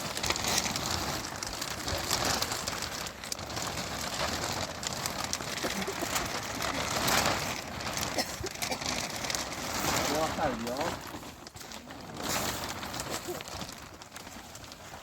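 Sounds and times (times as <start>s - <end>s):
rain falling: 0.0s - 11.1s
small crackles: 0.0s - 15.0s.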